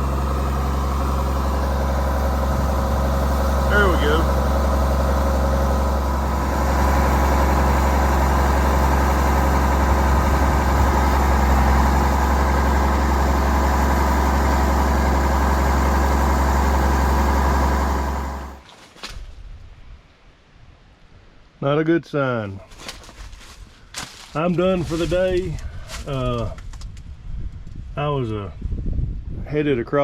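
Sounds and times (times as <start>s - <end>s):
combine engine hum: 0.0s - 18.6s
threshing drone: 0.0s - 18.6s.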